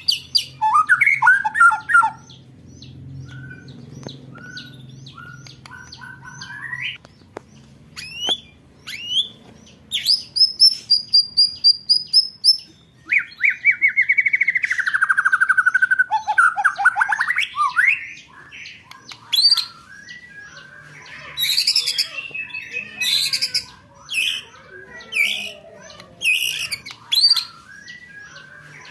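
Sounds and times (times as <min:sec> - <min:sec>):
songbird singing trills: 0:00.0 - 0:28.9.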